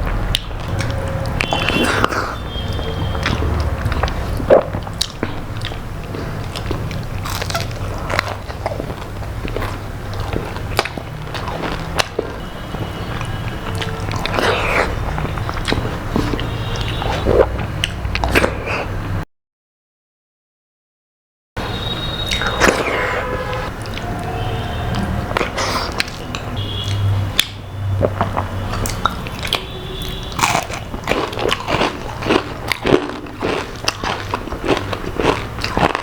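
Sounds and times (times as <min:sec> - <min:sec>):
chewing crispy fried food: 0:00.3 - 0:18.6, 0:22.2 - 0:36.0.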